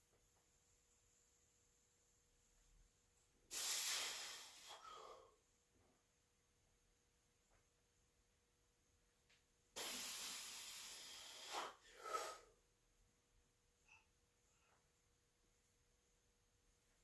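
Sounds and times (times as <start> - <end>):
person breathing out hard: 3.5 - 5.3, 9.8 - 12.6.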